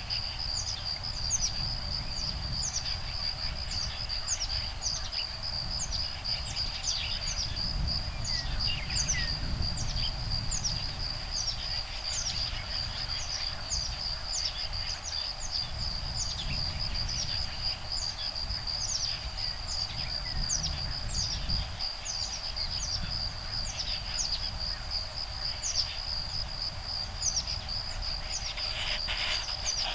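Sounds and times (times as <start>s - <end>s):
high-pitched insect trill: 0.0s - 29.9s
low rumble of breeze: 0.0s - 29.9s
woodpeckers chirping: 28.1s - 29.9s.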